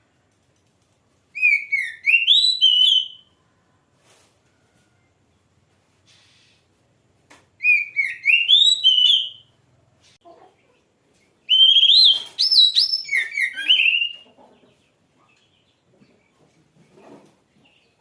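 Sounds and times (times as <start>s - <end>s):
bird singing whistled notes: 1.4s - 3.4s, 7.6s - 9.6s, 11.4s - 14.2s.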